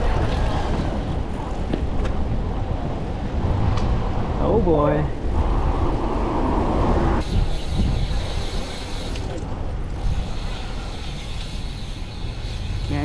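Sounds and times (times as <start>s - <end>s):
road rumble: 0.0s - 13.0s
wind: 0.0s - 13.0s
bicycle freewheel ticking: 7.2s - 13.0s.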